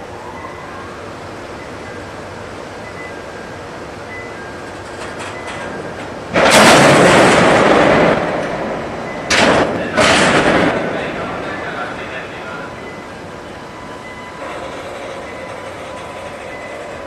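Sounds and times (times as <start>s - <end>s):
freight train starting to move: 0.0s - 17.0s
sudden loud bursts of noise: 6.3s - 12.5s.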